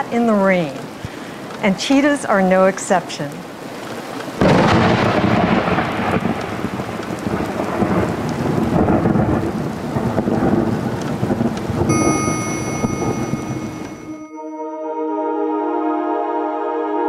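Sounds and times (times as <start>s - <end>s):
heavy rain pouring: 3.4s - 12.6s
low rumbling thunder: 4.4s - 11.9s
held music tones: 11.9s - 15.3s.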